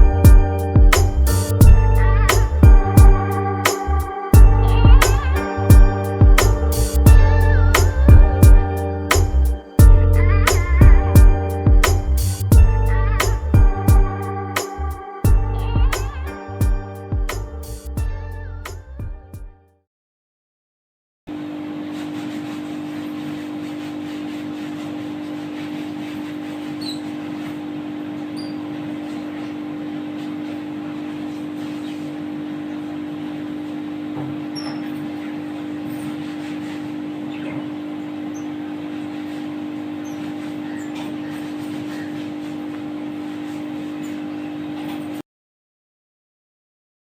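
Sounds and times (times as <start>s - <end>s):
low machine hum: 0.0s - 19.3s.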